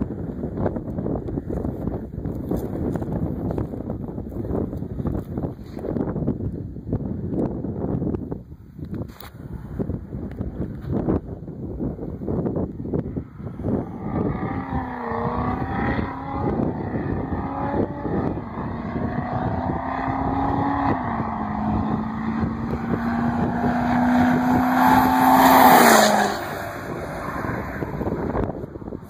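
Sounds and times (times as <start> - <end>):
diesel pickup driving past: 13.9 - 28.8.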